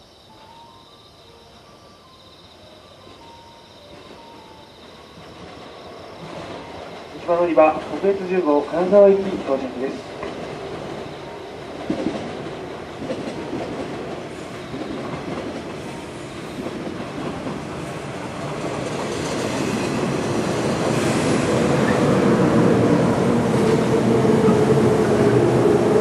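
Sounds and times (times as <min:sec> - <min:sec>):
train wheels on rails: 0:02.6 - 0:26.0.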